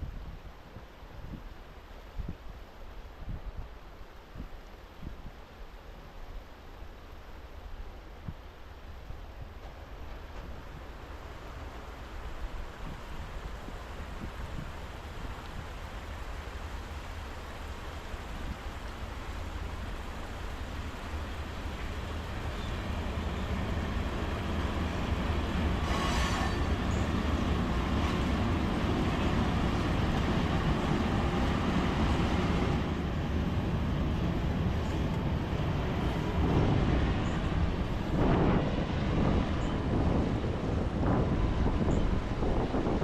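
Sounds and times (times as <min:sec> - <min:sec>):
diesel train rumbling past: 0:09.2 - 0:43.0.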